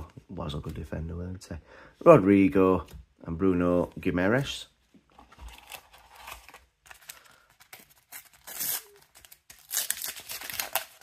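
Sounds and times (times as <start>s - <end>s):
paper packet tearing and crinkling: 5.5s - 11.0s.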